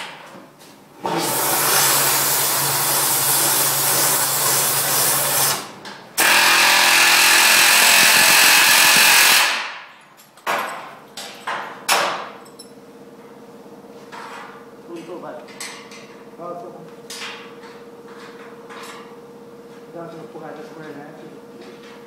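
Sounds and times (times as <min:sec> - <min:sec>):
electric power tool running: 0:01.0 - 0:09.8.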